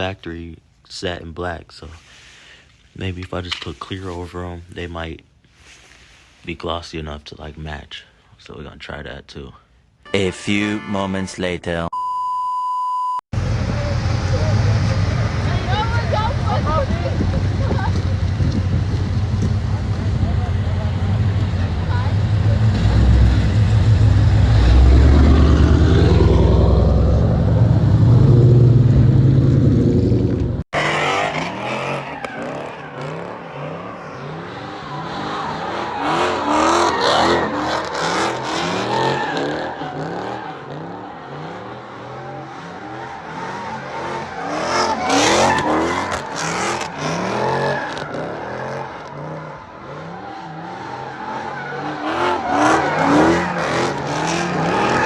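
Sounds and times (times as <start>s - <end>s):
heavy low engine rumble: 13.4s - 30.6s
car engines revving: 13.4s - 55.0s
tires squealing: 13.5s - 28.8s, 30.8s - 55.0s.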